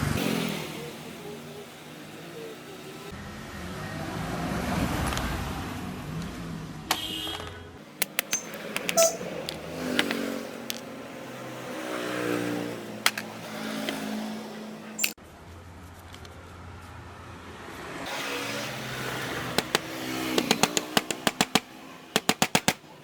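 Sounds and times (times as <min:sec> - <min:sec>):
metal clicks and clinks: 0:08.0 - 0:10.9.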